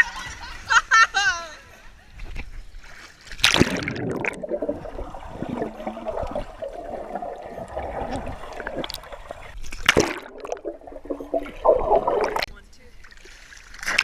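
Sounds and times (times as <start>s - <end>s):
water gurgling and splashing: 3.2s - 12.5s
loud water splash: 3.4s - 9.0s.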